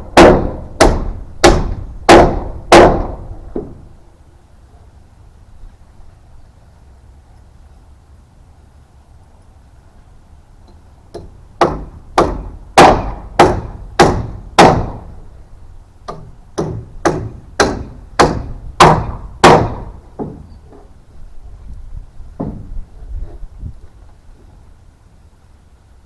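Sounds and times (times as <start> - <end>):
hammer driving nails into wood: 0.0 - 3.8, 11.2 - 15.2, 16.1 - 20.5.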